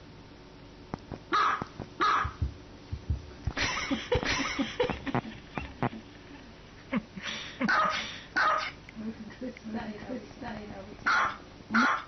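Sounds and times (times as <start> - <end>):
small dog barking: 1.3 - 2.4, 7.7 - 8.8, 11.1 - 12.0.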